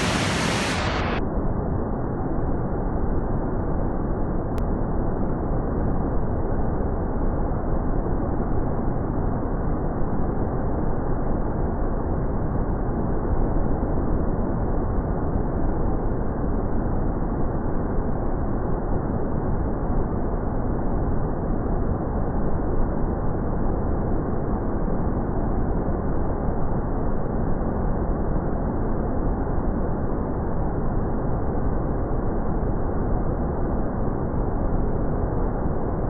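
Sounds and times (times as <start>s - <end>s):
waterfall rushing: 0.0s - 1.2s.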